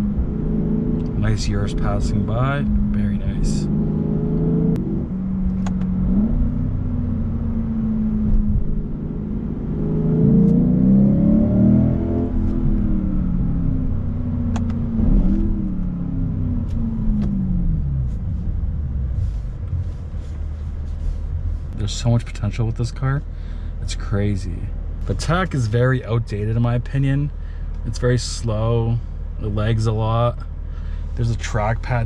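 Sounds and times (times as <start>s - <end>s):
car engine revving in cabin: 0.0s - 32.0s
tyre and road rumble: 0.0s - 32.0s
man talking: 1.1s - 3.7s, 21.7s - 30.5s, 31.1s - 32.0s.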